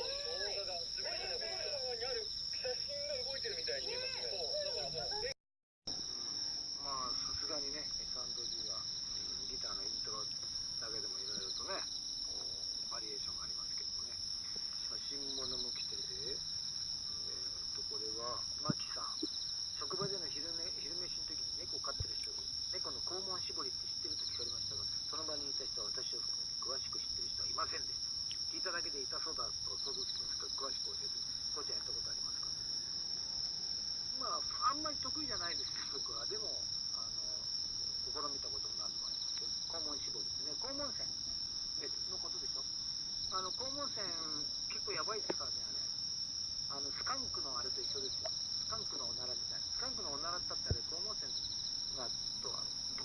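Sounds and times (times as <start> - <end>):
insects trilling: 0.0 - 5.3, 5.9 - 53.0
pulsing insect trill: 0.0 - 5.3, 5.9 - 53.0
people talking: 0.0 - 5.4, 6.8 - 14.2, 14.9 - 16.4, 17.2 - 28.0, 28.6 - 32.4, 34.2 - 37.4, 38.1 - 41.1, 41.8 - 42.6, 43.3 - 45.8, 46.7 - 51.3, 52.0 - 52.7
faint distant voices: 0.0 - 27.9
crickets chirping: 0.0 - 53.0
campfire pop: 18.6 - 20.4, 44.7 - 45.5, 50.6 - 51.0.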